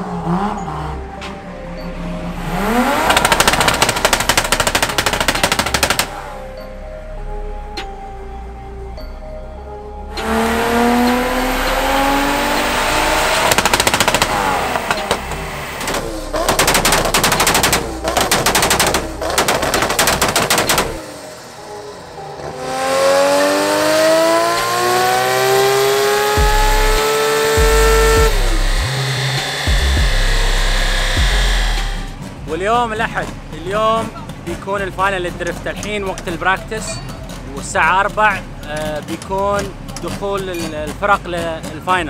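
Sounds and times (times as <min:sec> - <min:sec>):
car engine revving at full throttle: 0:00.0 - 0:06.6, 0:10.1 - 0:32.5
rapid sharp bangs: 0:03.0 - 0:06.2, 0:13.4 - 0:21.2.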